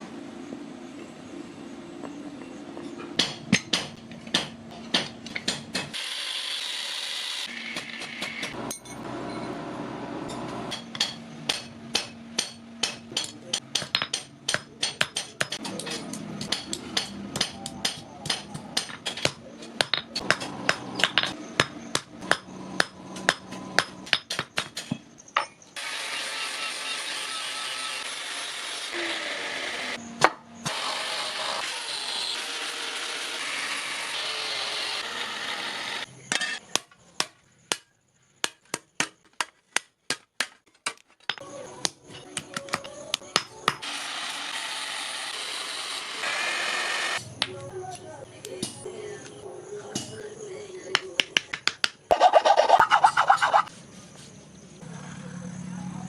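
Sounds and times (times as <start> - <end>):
hammer striking steel on anvil: 3.2 - 6.0, 10.3 - 25.6.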